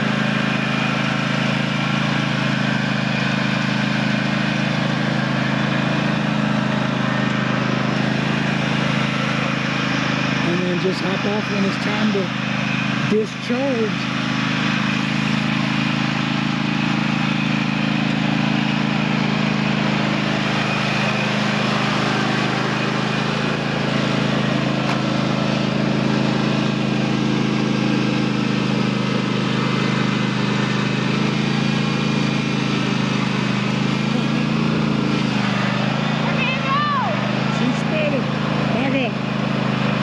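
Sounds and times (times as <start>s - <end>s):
small engine running steadily: 0.0s - 40.0s.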